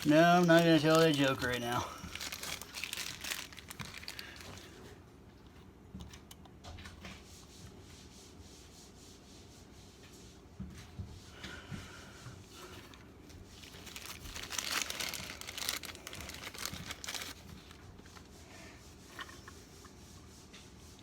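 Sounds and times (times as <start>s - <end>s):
parts rustling and scraping: 0.0s - 4.8s, 12.4s - 18.3s, 18.9s - 20.0s.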